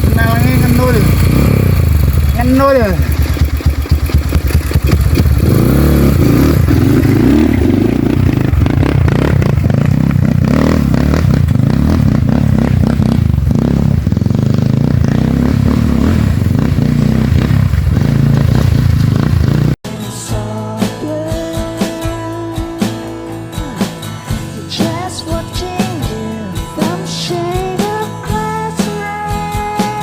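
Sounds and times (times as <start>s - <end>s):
dirt bike engine revving: 0.0s - 19.8s.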